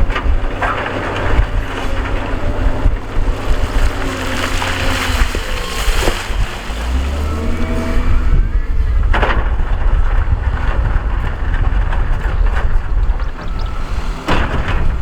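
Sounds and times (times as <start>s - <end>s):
diesel engine rumbling under load: 0.0s - 15.0s.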